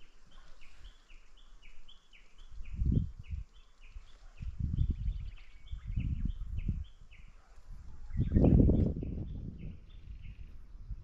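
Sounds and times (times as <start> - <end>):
wind rumble on microphone: 2.2 - 11.0.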